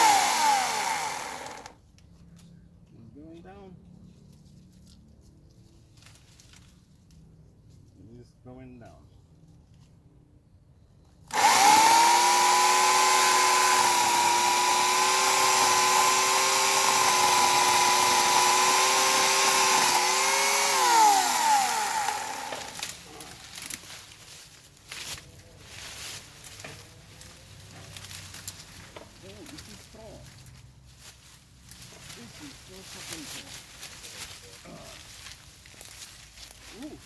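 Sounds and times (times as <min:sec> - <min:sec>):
electric chainsaw cutting wood: 0:00.0 - 0:01.8, 0:11.3 - 0:23.8.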